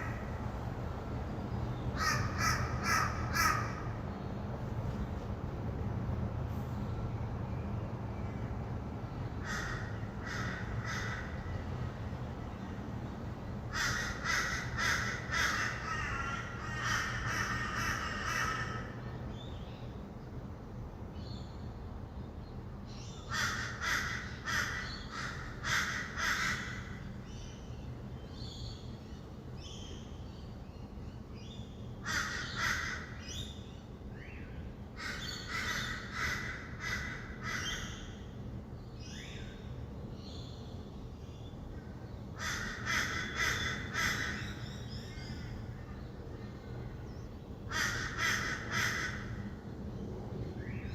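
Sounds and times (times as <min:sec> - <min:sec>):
distant city traffic hum: 0:00.0 - 0:50.9
birds calling: 0:01.5 - 0:04.6, 0:08.2 - 0:11.8, 0:13.6 - 0:20.1, 0:23.0 - 0:50.9.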